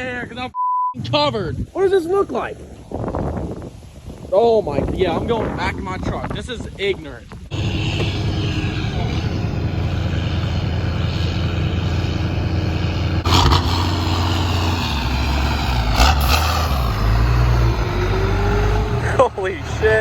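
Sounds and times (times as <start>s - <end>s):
rising engine whine: 7.5s - 20.0s
truck engine running: 7.5s - 20.0s.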